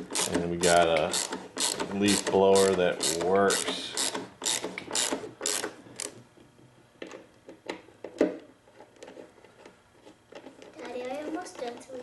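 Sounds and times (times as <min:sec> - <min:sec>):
ratchet tool clicking: 0:00.0 - 0:00.4, 0:01.0 - 0:06.1.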